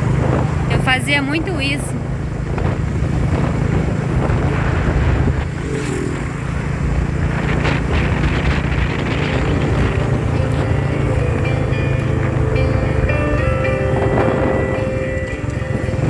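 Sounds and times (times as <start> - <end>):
motorcycle engine rumbling: 0.0 - 16.0.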